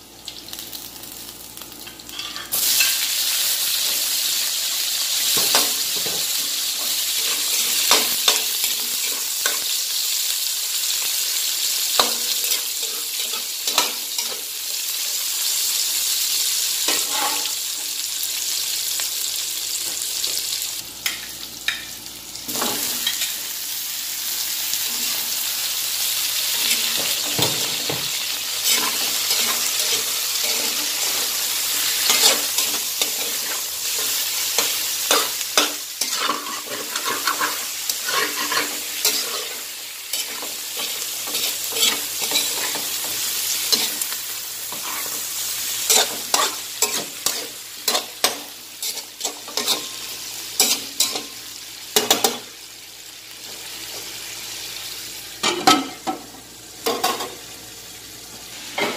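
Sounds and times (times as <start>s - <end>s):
chicken sizzling in hot oil: 0.0s - 58.9s
metal spatula scraping a wok: 16.9s - 17.6s, 28.6s - 31.4s, 32.0s - 42.9s.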